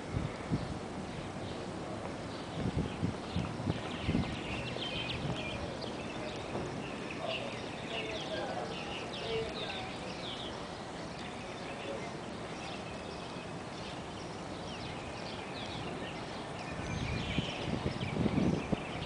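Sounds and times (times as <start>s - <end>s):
birds chirping: 0.0s - 19.0s
low rumbling thumps: 2.0s - 5.5s.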